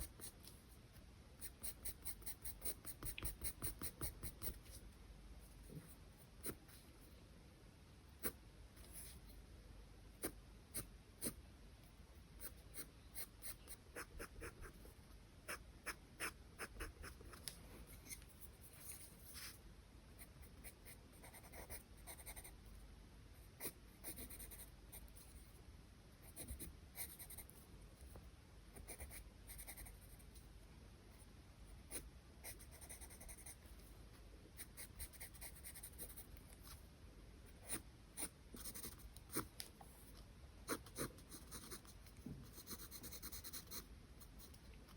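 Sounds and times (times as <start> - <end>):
pencil scratching on paper: 1.4 - 4.8, 12.4 - 14.9, 15.5 - 19.6, 20.2 - 22.5, 31.9 - 33.6, 37.6 - 39.5, 40.7 - 44.6.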